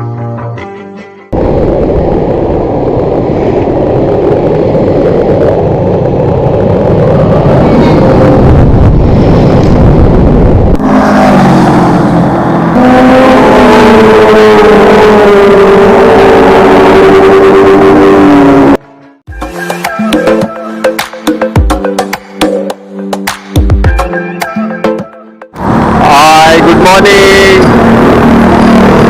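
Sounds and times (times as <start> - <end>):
wind rushing: 1.3 - 18.8
road traffic: 1.4 - 19.3, 25.5 - 29.0.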